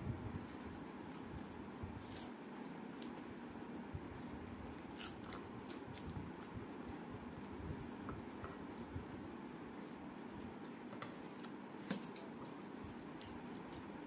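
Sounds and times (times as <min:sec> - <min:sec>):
low background hum: 0:00.0 - 0:14.0
person chewing food: 0:04.1 - 0:14.0.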